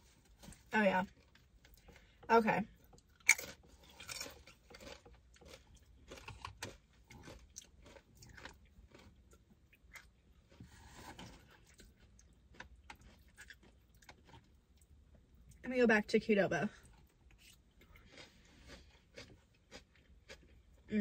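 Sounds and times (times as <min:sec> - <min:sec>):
person chewing and biting food: 0:02.8 - 0:15.0, 0:16.9 - 0:20.9.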